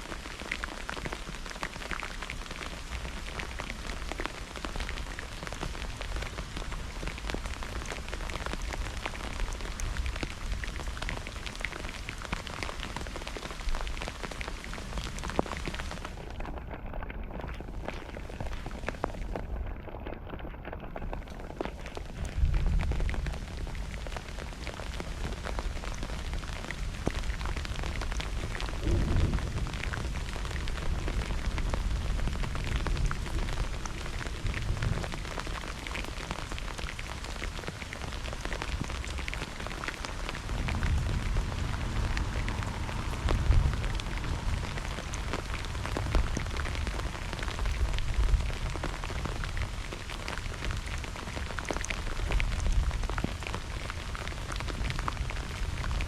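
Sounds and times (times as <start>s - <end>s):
heavy rain pattering: 0.0s - 56.0s
thunder rumbles: 22.0s - 36.9s, 38.3s - 49.8s.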